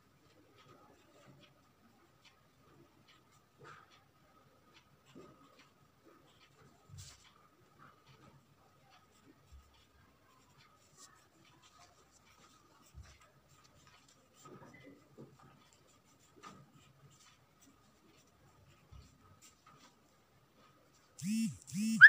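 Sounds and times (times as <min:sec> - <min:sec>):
drawing tool scratching on paper: 0:00.5 - 0:20.1.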